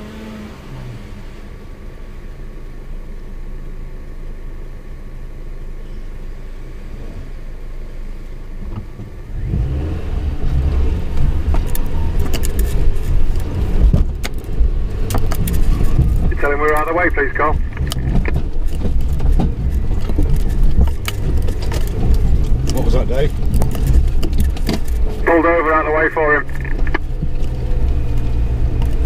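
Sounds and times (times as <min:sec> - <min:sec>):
engine idling: 0:01.4 - 0:09.6, 0:10.6 - 0:29.0
vehicle driving over rough lane: 0:06.6 - 0:29.0
knocks and rattles: 0:11.5 - 0:25.3.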